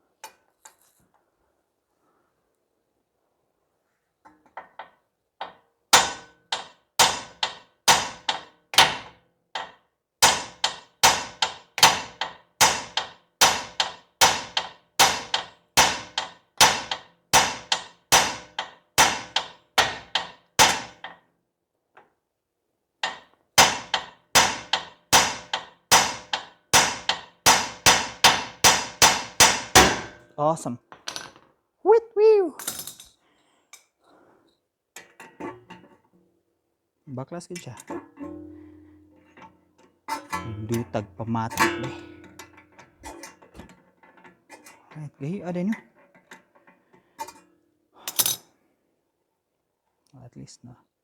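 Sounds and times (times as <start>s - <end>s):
hammer striking metal: 23.1s - 30.2s, 38.0s - 39.1s, 40.2s - 42.7s.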